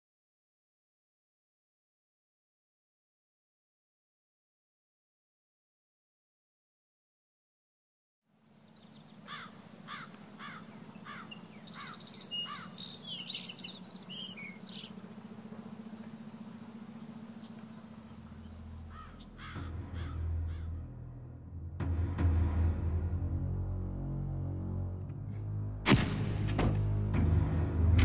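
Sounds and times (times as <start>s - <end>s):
steady low hum: 8.3s - 28.0s
birds calling: 8.6s - 20.8s
low rumble: 14.5s - 28.0s.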